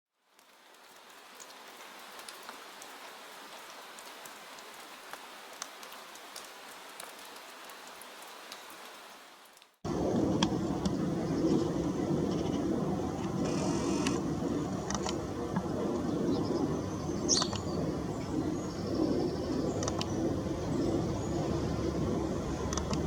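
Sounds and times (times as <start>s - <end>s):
soft rain hiss: 0.1s - 23.0s
rain drop ticks: 0.3s - 11.0s, 12.2s - 16.1s, 17.3s - 18.3s, 19.7s - 20.3s, 22.4s - 23.0s
loud low rumbling noise: 9.9s - 23.0s.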